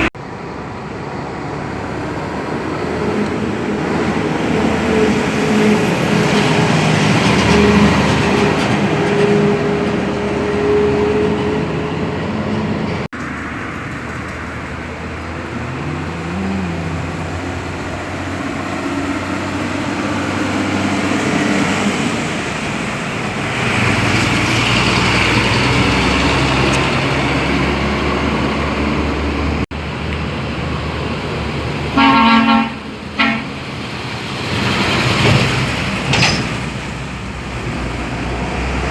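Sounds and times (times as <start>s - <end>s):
road traffic with trucks passing: 0.0s - 38.9s
vehicle horn blowing: 32.0s - 33.6s.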